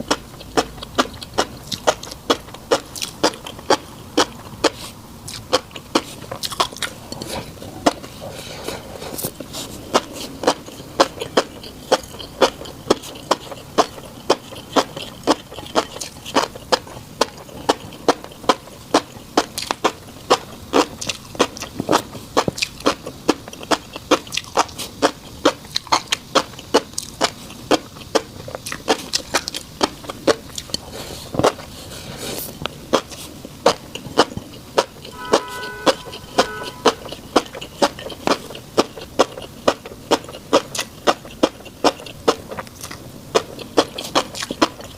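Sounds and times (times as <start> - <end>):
wet chewing clicks: 0.0 - 44.9
brief pitched tone: 35.1 - 37.1.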